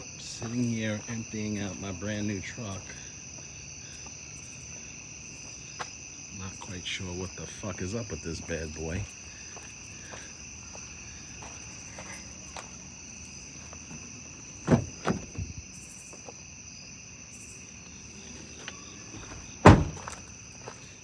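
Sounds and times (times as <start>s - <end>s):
crickets chirping: 0.0s - 21.0s
loud thump: 14.6s - 15.6s, 19.6s - 20.2s.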